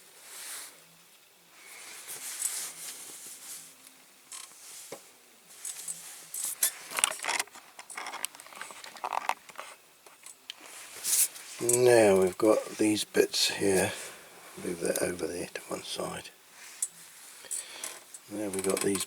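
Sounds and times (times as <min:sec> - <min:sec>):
model parts clicking and tapping: 0:17.8 - 0:19.0.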